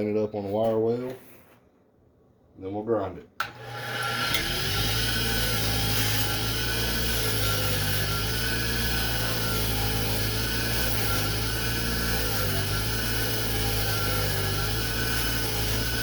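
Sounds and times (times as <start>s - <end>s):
electric wire wheel running: 3.4s - 16.0s.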